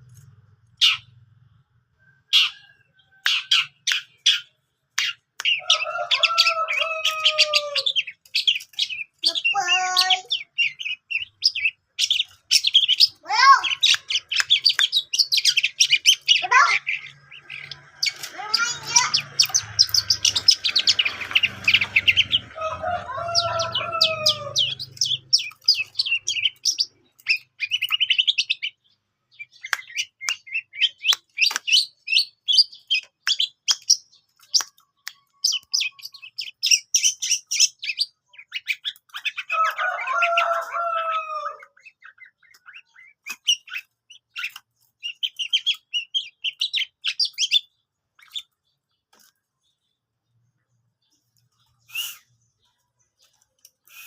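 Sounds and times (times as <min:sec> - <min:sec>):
shrike chattering song: 0:02.4 - 0:28.8
bird falling calls: 0:05.0 - 0:28.6.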